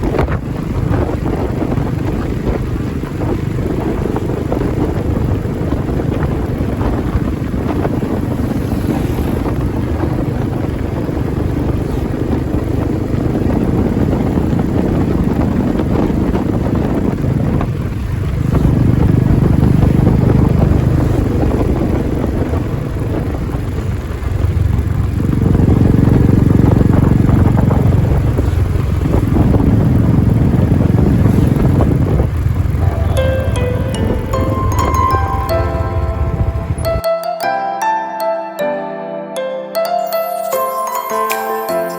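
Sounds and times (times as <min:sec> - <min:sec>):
motorcycle engine running: 0:00.0 - 0:32.8.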